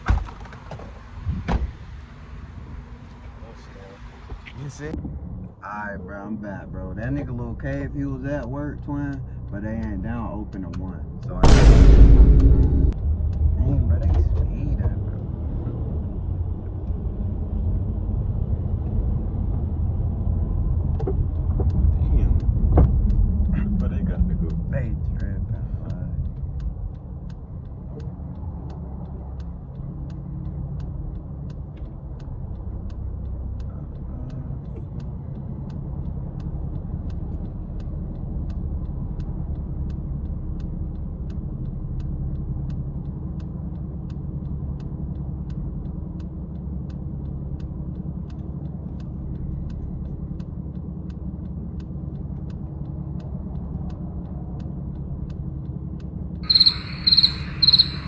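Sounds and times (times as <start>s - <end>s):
engine and road rumble: 0.0s - 58.0s
light ticking: 21.2s - 58.0s.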